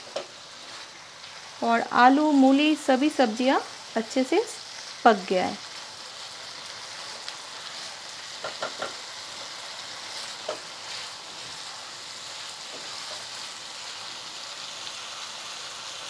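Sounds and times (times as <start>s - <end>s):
vegetables sizzling in a pan: 0.0s - 16.0s
spatula clicking on pan: 8.4s - 9.0s.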